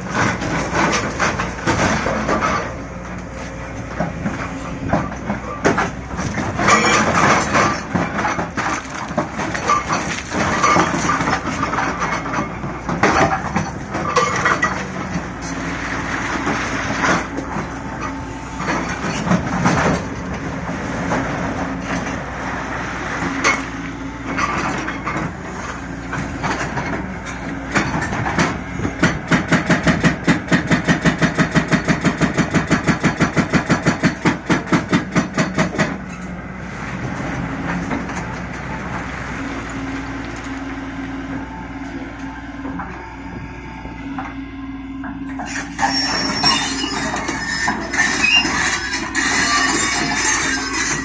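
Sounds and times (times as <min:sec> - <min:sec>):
excavator diesel engine under load: 0:00.0 - 0:51.0
hydraulic rock breaker hammering: 0:23.3 - 0:36.3, 0:45.0 - 0:51.0.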